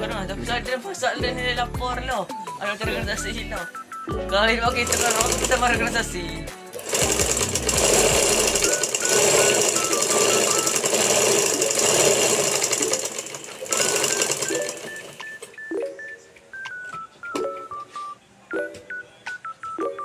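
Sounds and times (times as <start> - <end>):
sewing machine rattling: 4.7 - 6.2, 6.8 - 15.6
faint simple tune: 14.4 - 20.0.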